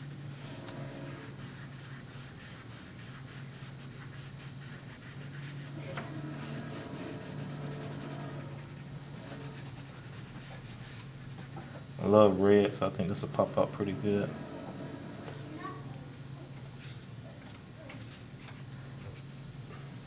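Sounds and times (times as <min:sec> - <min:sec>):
drawing tool scratching paper: 0:00.0 - 0:11.7, 0:13.4 - 0:15.4
steady low hum: 0:00.0 - 0:20.0.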